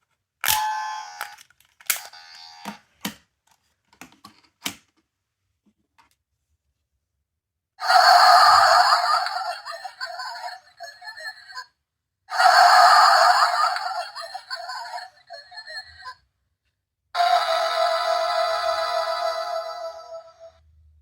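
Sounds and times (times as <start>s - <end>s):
recorded clip from tiny speaker: 7.8s - 21.0s.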